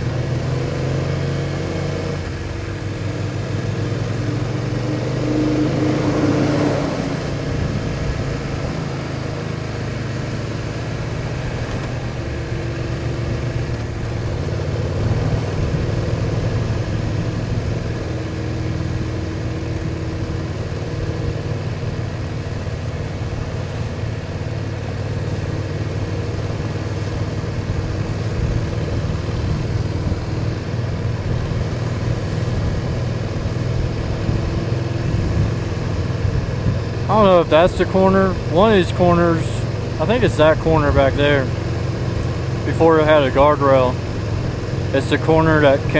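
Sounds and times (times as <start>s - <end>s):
motorcycle engine running: 0.0s - 45.9s
wind rushing: 4.0s - 8.9s.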